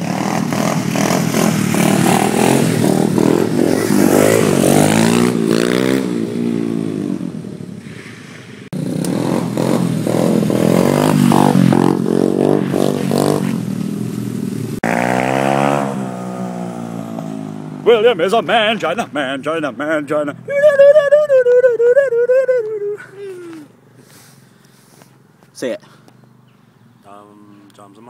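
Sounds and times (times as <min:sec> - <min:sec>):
pit bike engine revving: 0:00.0 - 0:07.6, 0:08.8 - 0:19.9.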